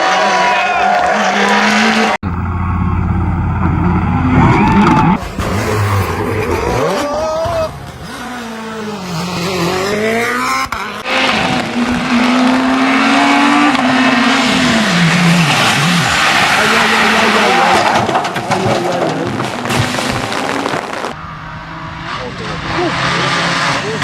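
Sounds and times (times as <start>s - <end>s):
rally car engines revving: 0.0s - 24.0s
car engine high steady note: 1.4s - 4.4s.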